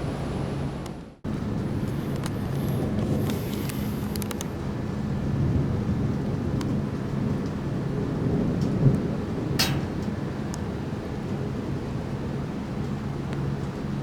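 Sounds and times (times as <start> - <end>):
rain falling: 1.3 - 14.0
thunder rumbling: 4.6 - 13.2
sharp crack: 9.6 - 10.3.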